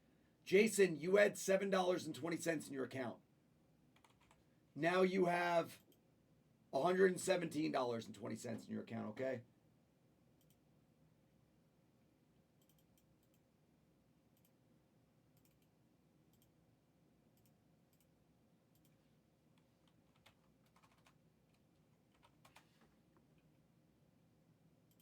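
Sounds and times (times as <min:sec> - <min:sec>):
computer keyboard clicks: 0:04.0 - 0:04.4, 0:12.6 - 0:13.4, 0:15.4 - 0:15.7, 0:19.6 - 0:22.8.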